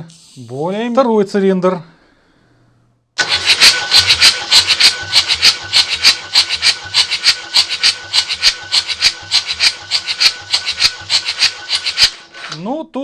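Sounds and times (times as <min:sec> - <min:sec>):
diesel engine cranking: 0:03.2 - 0:12.6
starter motor whine: 0:03.2 - 0:12.6.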